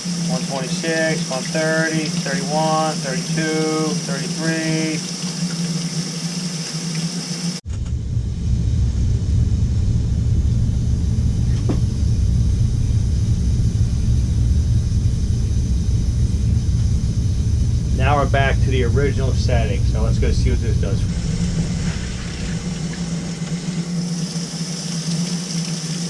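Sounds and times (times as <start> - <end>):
water running from faucet: 0.0 - 7.6, 17.9 - 26.0
loud low rumble: 7.6 - 24.6.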